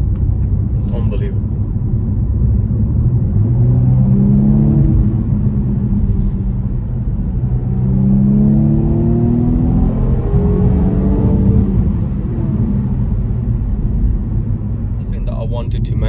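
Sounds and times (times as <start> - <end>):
low cabin rumble: 0.0 - 7.8, 11.5 - 16.0
car engine accelerating: 0.0 - 16.0.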